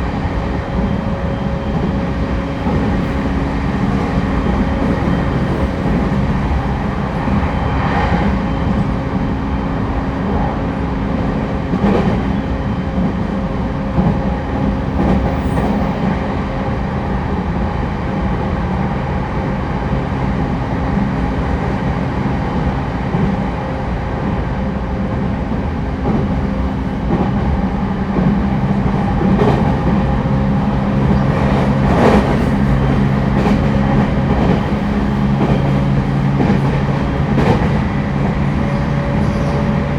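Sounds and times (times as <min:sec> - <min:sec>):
train interior rumble: 0:00.0 - 0:39.9.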